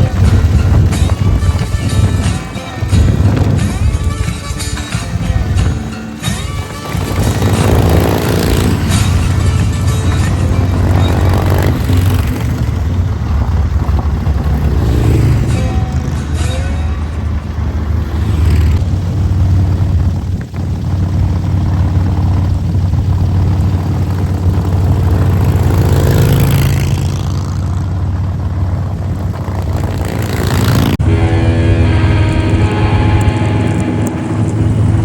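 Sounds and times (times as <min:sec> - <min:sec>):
motorcycle engine rumble: 0:00.0 - 0:35.0
wind and road noise: 0:00.0 - 0:35.0.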